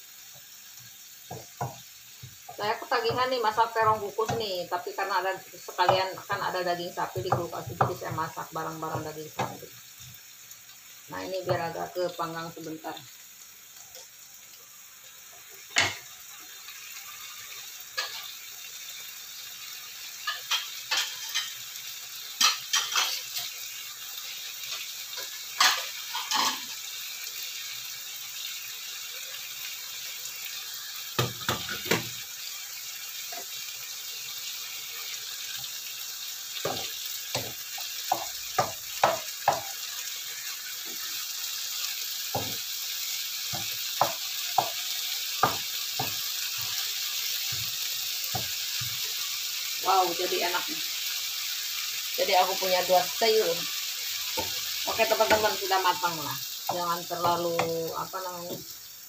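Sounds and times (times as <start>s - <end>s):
food sizzling in a wok: 0.0s - 59.0s.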